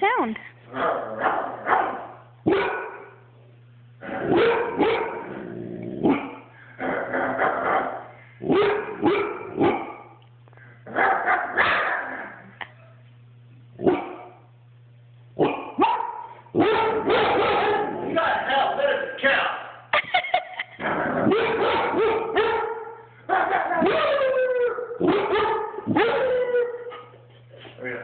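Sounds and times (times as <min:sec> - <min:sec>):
steady low hum: 0:00.0 - 0:28.0
dog woofing: 0:04.0 - 0:10.1, 0:20.8 - 0:27.2.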